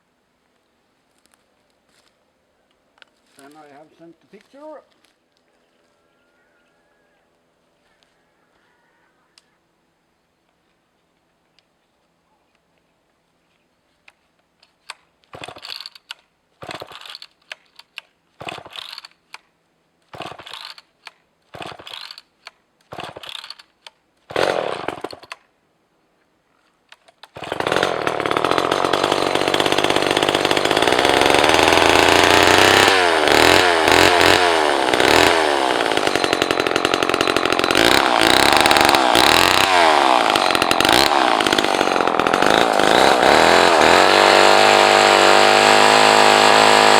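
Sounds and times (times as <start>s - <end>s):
chainsaw starter cord pulls: 14.6s - 19.4s, 20.1s - 25.4s, 26.9s - 46.9s
chainsaw engine revving: 15.3s - 16.0s, 16.6s - 17.3s, 18.4s - 19.1s, 20.1s - 20.8s, 21.5s - 22.2s, 22.9s - 23.6s, 24.3s - 25.4s, 27.3s - 46.9s.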